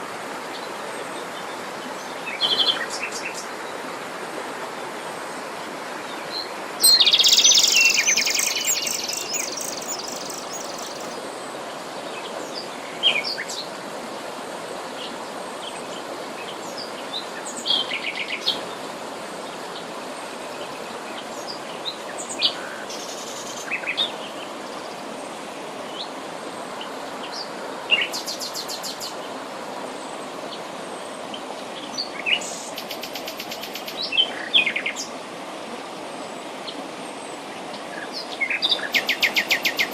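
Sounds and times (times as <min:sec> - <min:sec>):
background hiss: 0:00.0 - 0:39.9
wild birds singing and calling: 0:06.3 - 0:11.2, 0:37.7 - 0:39.9.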